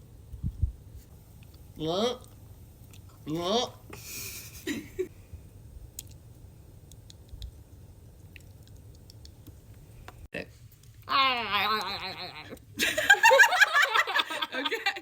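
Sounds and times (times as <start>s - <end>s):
person making wavering vocal sound: 11.1s - 12.6s.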